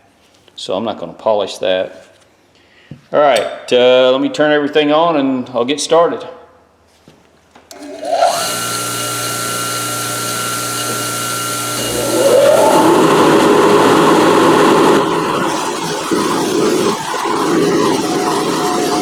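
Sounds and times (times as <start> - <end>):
bench motor whining: 7.7 - 19.0
second machine spinning up: 7.7 - 19.0.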